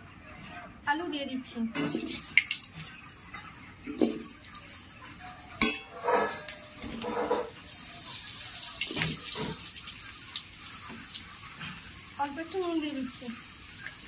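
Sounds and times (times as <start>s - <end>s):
utensil knocking and scraping pan: 5.6s - 7.6s
potatoes sizzling in oil: 6.4s - 14.0s.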